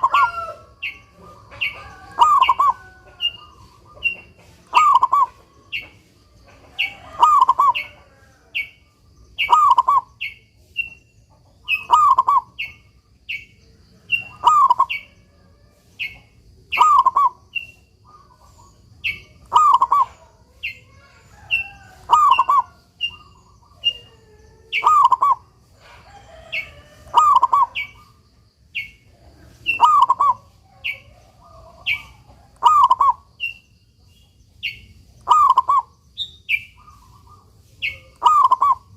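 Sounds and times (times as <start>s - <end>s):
dove cooing: 0.0s - 5.9s, 6.6s - 8.7s, 9.4s - 10.4s, 11.6s - 12.6s, 14.0s - 15.4s, 16.0s - 28.2s, 29.2s - 33.3s, 35.2s - 35.9s, 36.8s - 38.9s
high bird chirps: 16.0s - 20.9s, 24.8s - 25.5s, 31.8s - 38.9s.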